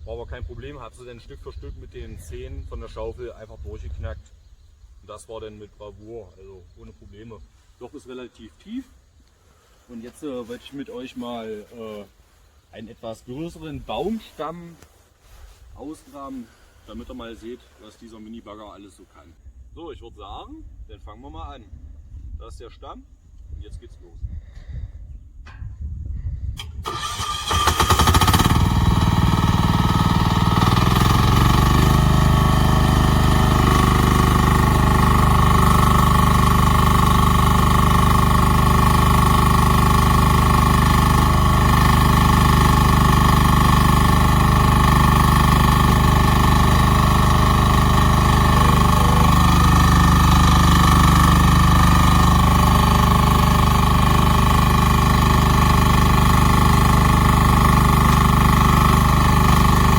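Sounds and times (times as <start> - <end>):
excavator engine cranking and running: 26.8 - 59.9.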